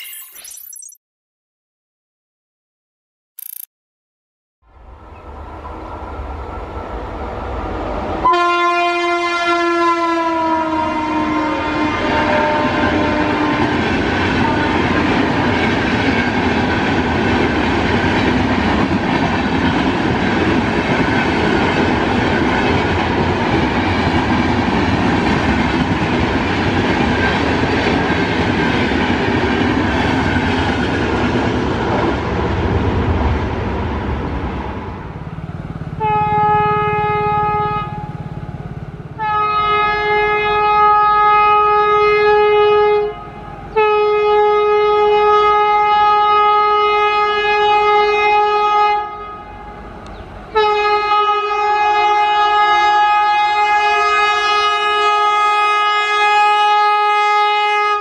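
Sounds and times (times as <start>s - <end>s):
train horn chord: 7.6s - 15.1s, 36.0s - 38.2s, 39.2s - 49.8s, 50.5s - 58.0s
train wheels rushing on rail: 11.7s - 39.3s.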